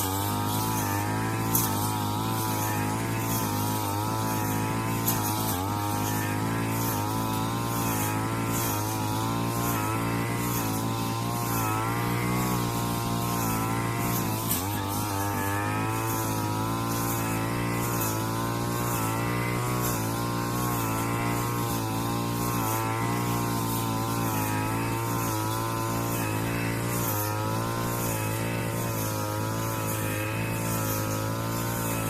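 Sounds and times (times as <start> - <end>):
brush cutter cutting grass: 0.0 - 32.0.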